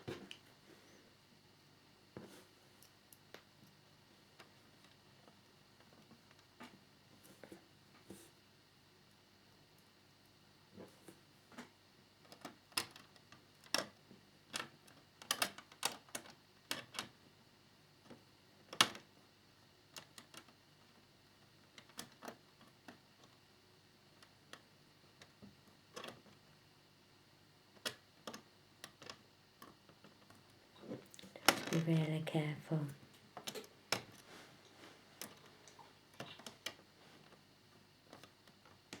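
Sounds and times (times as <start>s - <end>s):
small clicks and taps of parts: 11.5s - 17.2s, 18.0s - 19.1s, 19.9s - 23.4s, 24.2s - 26.4s, 27.8s - 30.5s.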